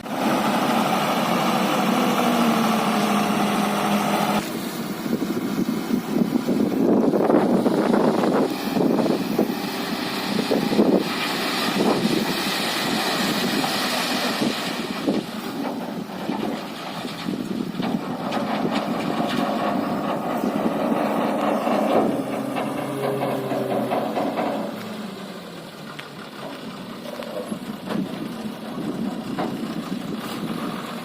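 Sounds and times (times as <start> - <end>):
backhoe diesel engine running: 0.0 - 31.0
metal knocks and clanks: 15.6 - 25.1.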